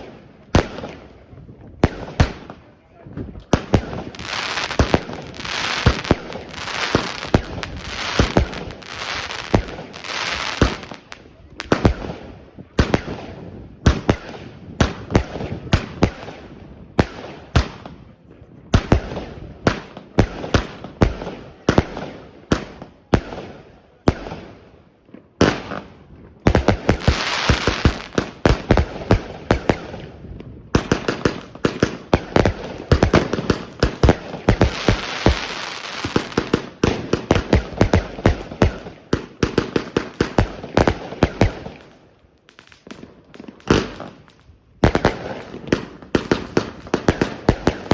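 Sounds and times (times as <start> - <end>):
firework bangs: 0.0 - 18.0, 25.4 - 42.0, 42.7 - 47.9
firework crackling: 3.5 - 12.2, 25.4 - 47.9.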